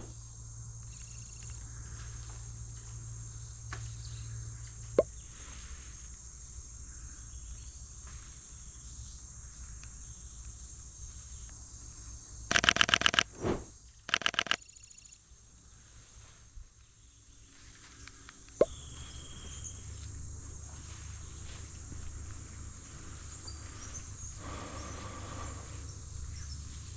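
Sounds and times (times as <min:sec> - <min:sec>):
insects buzzing: 0:00.2 - 0:07.9, 0:08.8 - 0:15.8, 0:17.0 - 0:26.9
camera shutter rapid clicking: 0:12.5 - 0:13.3, 0:14.1 - 0:15.1.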